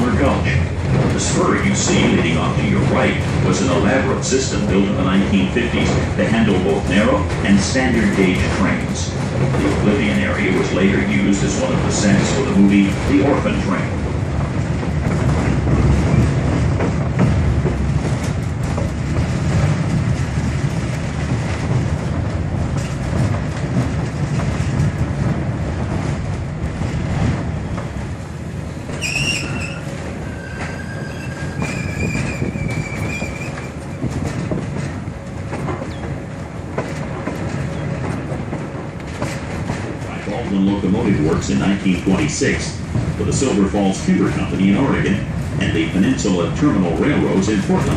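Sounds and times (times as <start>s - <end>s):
train wheels clattering on rails: 0.0s - 47.9s
train wheels squealing: 29.0s - 34.1s.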